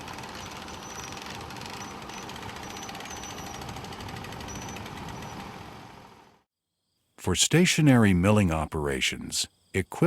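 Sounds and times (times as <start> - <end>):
small engine knocking rhythmically: 0.0 - 6.2.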